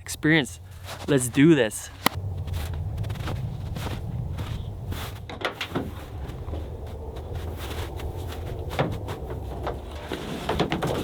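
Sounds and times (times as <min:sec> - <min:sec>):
steady low rumble: 0:01.8 - 0:10.0.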